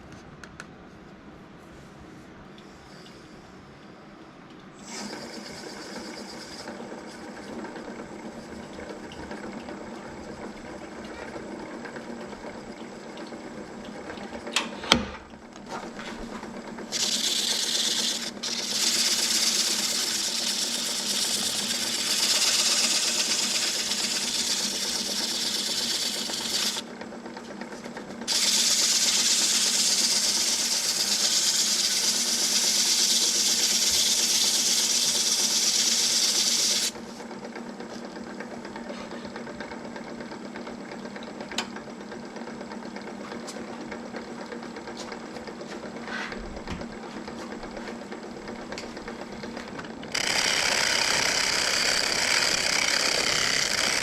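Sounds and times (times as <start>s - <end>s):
tool hissing against spinning wood: 4.9s - 7.4s, 16.9s - 26.8s, 28.3s - 37.0s, 50.1s - 54.0s
wood lathe motor humming: 5.0s - 8.5s, 16.7s - 26.9s, 28.3s - 37.0s, 50.1s - 54.0s.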